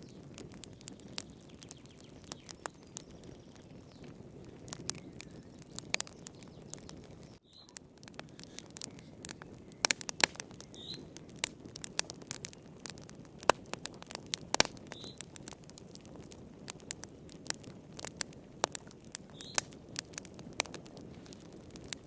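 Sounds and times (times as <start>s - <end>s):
fire crackling and popping: 0.0s - 22.0s
hiss of flames: 8.0s - 22.0s
high chirps: 10.7s - 11.1s.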